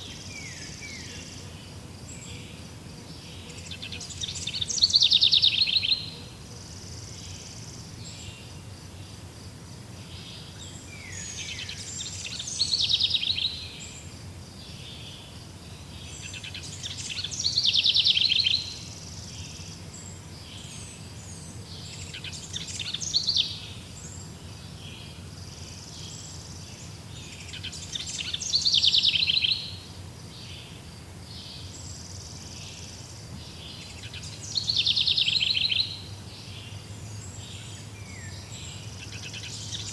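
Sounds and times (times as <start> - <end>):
songbird trilling: 3.4 - 6.2, 16.1 - 19.6, 21.7 - 23.8, 27.2 - 29.8, 33.4 - 39.9.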